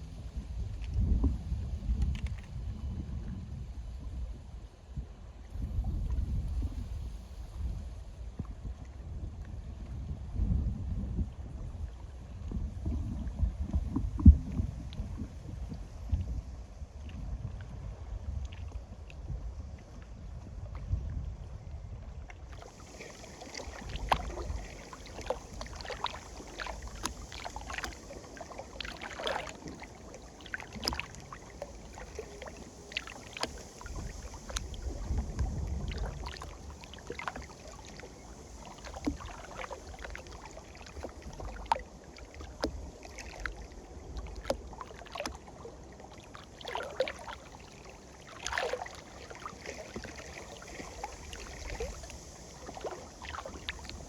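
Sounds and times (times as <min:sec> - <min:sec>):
wind rumbling on microphone: 0:00.0 - 0:54.0
waves lapping against shore: 0:22.4 - 0:54.0.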